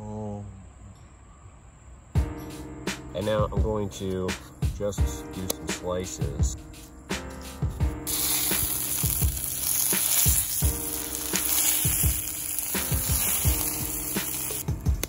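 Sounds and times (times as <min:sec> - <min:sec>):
background music with low beat: 0:02.2 - 0:15.0
eggs sizzling in a skillet: 0:08.1 - 0:14.6.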